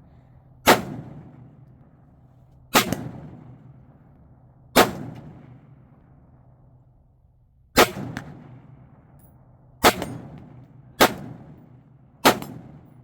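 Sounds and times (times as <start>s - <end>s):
rifle shots with echo: 0.6s - 2.0s, 2.7s - 4.1s, 4.7s - 6.5s, 7.8s - 13.0s.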